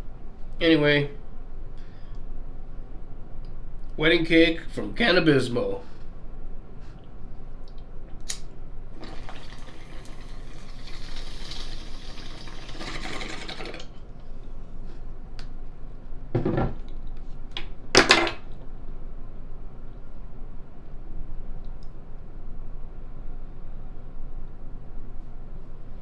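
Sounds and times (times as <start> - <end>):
water bubbling through a bong: 9.0 - 13.9
click: 21.6 - 22.0.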